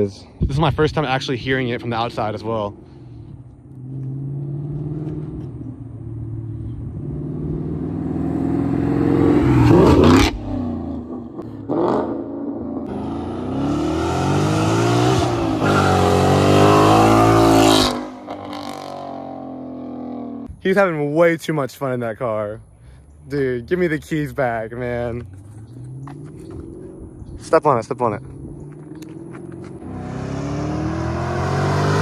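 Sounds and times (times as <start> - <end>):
car engine revving loudly: 6.2 - 20.3, 29.0 - 32.0.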